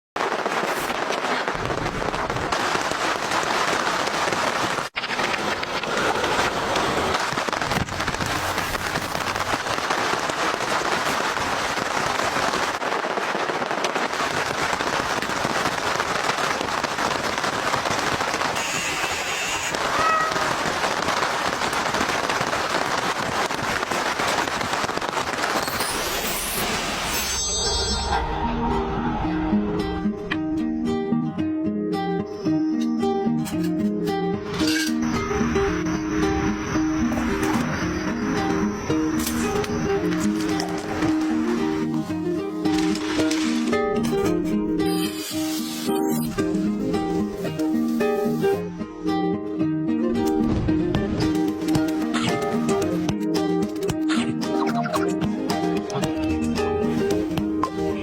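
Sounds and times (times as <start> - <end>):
rain falling: 0.3 - 27.4, 35.0 - 43.8.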